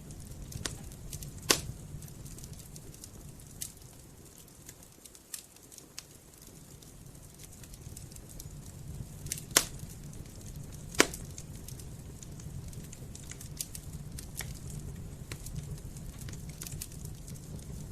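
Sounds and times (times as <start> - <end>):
campfire crackling: 0.0 - 17.9
loud pops of fire: 0.0 - 17.9
low rumble of flames: 0.0 - 17.9.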